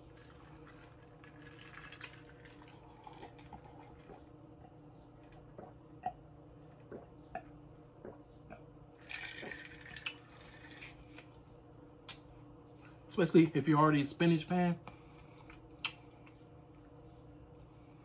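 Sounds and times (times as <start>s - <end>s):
man chewing wetly: 0.0s - 8.7s
faint steady hum: 0.0s - 18.0s.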